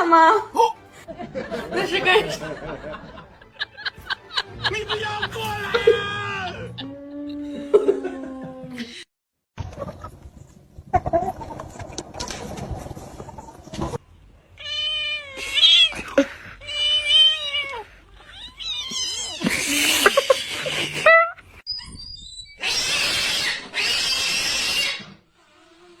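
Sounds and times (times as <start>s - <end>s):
cat yowling: 16.6s - 19.5s.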